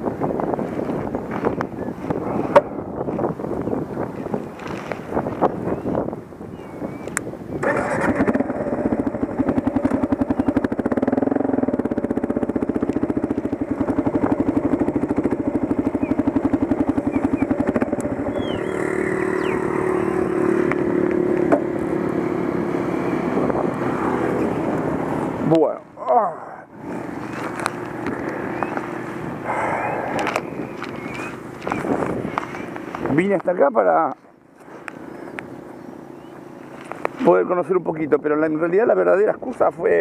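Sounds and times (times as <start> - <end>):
motorcycle engine starting and idling: 7.5 - 26.1.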